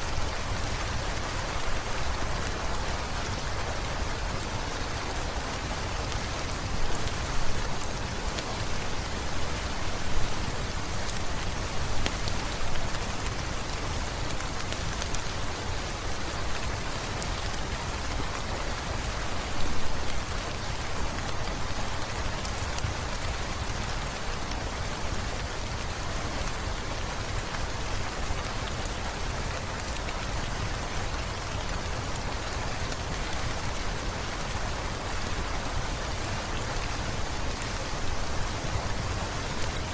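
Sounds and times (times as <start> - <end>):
rain on hard surfaces: 0.0 - 39.9.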